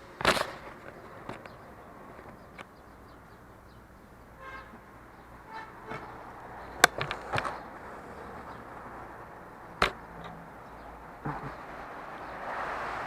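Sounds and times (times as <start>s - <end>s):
motorcycle riding noise: 5.4s - 13.0s
sharp knocks: 11.2s - 11.7s.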